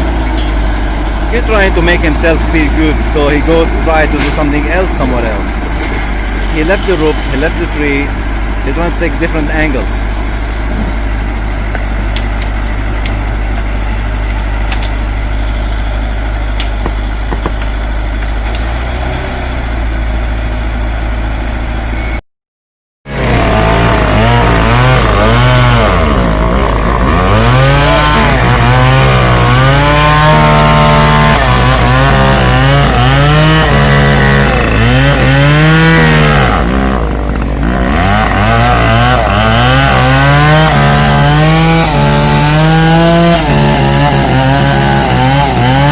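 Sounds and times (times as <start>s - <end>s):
heavy machine engine running: 0.0s - 22.2s, 23.1s - 45.9s
chainsaw revving and cutting wood: 1.2s - 10.1s, 23.1s - 45.9s.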